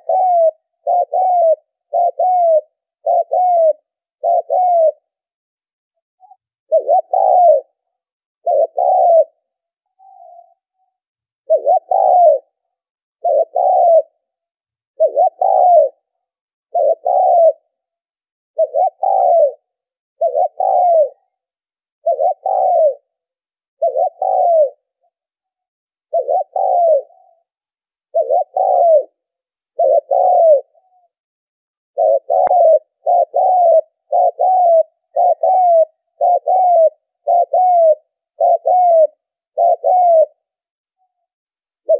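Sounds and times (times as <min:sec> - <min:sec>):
dove cooing: 0:00.0 - 0:05.2, 0:06.2 - 0:12.6, 0:13.2 - 0:14.4, 0:15.0 - 0:17.9, 0:18.6 - 0:21.4, 0:22.0 - 0:23.2, 0:23.8 - 0:25.1, 0:26.1 - 0:27.5, 0:28.1 - 0:31.2, 0:32.0 - 0:40.6.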